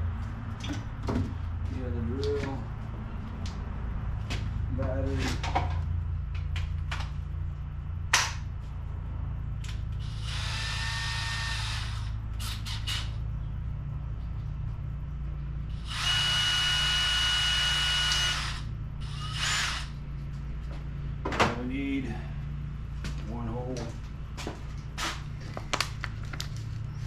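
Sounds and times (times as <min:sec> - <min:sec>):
steady low hum: 0:00.0 - 0:27.0
cordless drill whirring: 0:10.0 - 0:13.1, 0:15.7 - 0:19.9.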